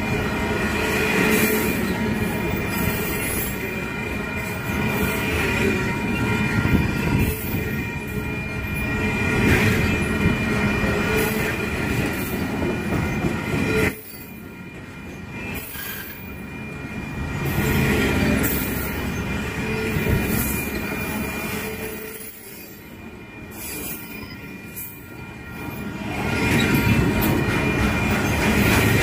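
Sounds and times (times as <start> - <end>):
high-pitched wheel squeal: 23.5 - 28.7
wheels clattering on rails: 25.6 - 29.0.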